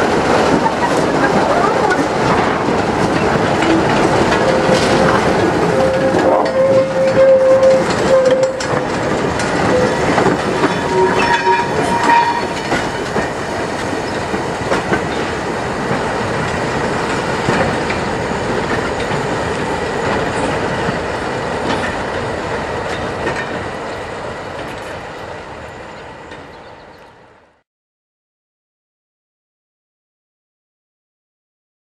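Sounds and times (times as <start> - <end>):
wheels clacking over rail joints: 0.0 - 26.9
wheel squeals: 3.2 - 9.0, 9.6 - 12.7.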